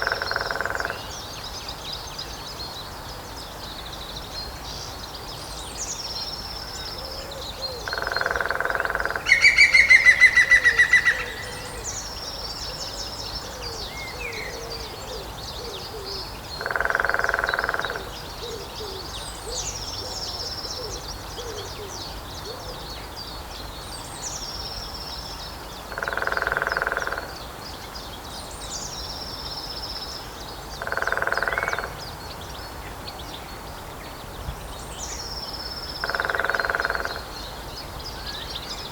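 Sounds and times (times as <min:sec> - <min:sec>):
woodpecker rapid calls: 0:00.0 - 0:01.1, 0:07.8 - 0:12.1, 0:16.6 - 0:18.1, 0:25.9 - 0:27.3, 0:30.8 - 0:32.0, 0:36.0 - 0:37.3.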